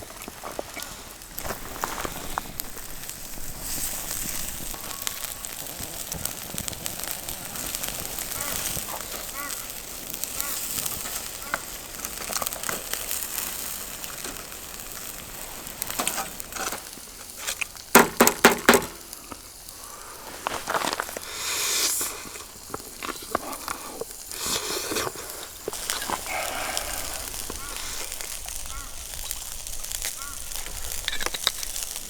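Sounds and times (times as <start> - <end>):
campfire crackling and hissing: 0.0 - 32.0
loud sharp knocks: 18.0 - 19.0.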